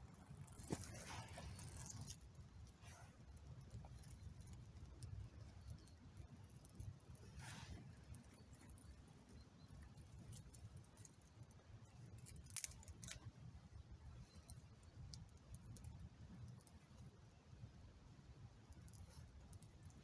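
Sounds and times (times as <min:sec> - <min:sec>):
faint ticks: 0:14.2 - 0:17.1.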